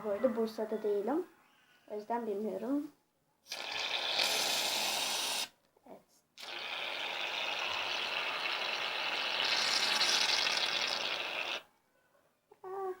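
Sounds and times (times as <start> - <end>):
aerosol can spraying: 3.5 - 5.5, 9.4 - 11.6.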